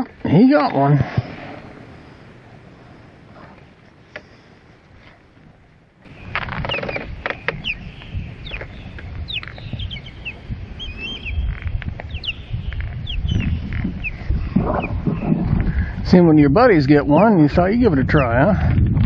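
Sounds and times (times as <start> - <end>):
birds chirping: 0.0 - 18.4
low rumble: 7.6 - 19.0.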